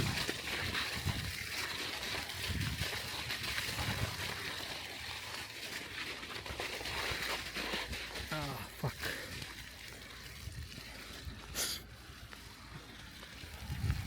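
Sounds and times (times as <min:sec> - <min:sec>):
bicycle tyres rolling on slush: 0:00.0 - 0:14.0
low rumbles on microphone: 0:13.5 - 0:14.0.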